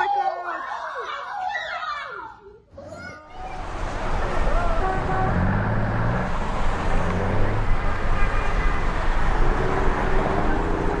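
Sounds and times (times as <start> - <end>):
road traffic rumble: 3.4 - 11.0.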